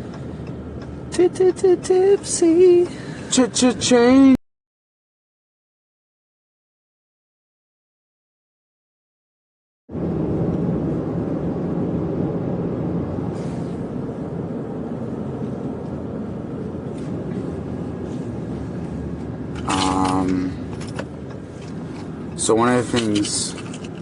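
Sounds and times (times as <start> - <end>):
truck road and engine rumble: 0.0 - 4.4, 9.9 - 24.0.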